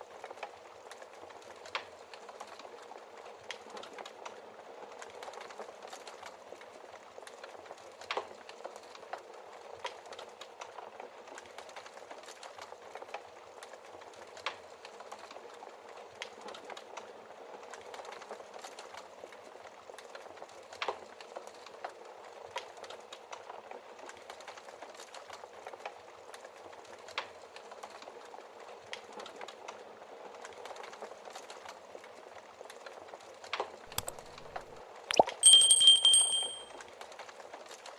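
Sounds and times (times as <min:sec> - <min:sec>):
bright ringing clink: 0:35.1 - 0:36.7.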